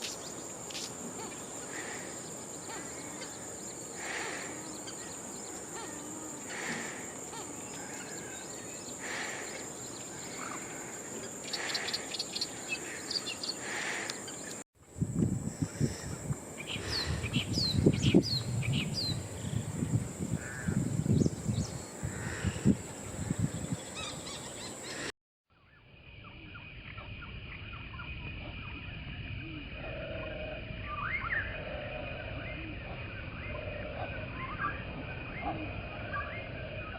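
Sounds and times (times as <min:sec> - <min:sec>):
birds chirping and calling: 0:00.0 - 0:14.6, 0:15.5 - 0:25.1
crickets droning: 0:00.0 - 0:36.9.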